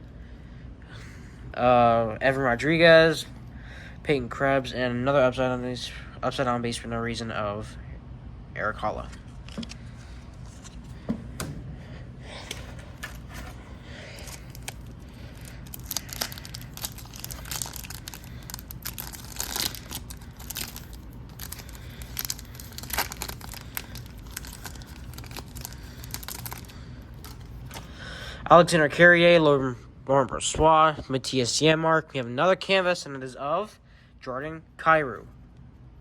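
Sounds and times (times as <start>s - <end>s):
plastic wrapper tearing and crinkling: 14.2s - 27.8s.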